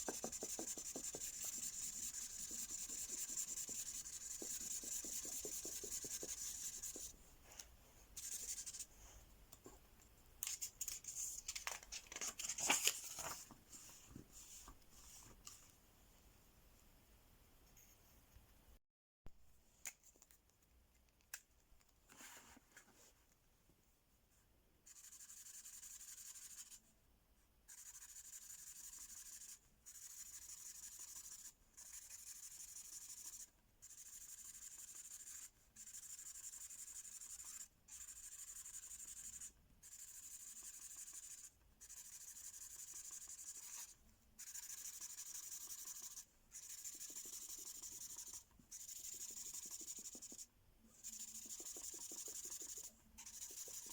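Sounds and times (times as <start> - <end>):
marker scribbling on paper: 0.0 - 7.2, 8.2 - 9.0, 27.7 - 53.9.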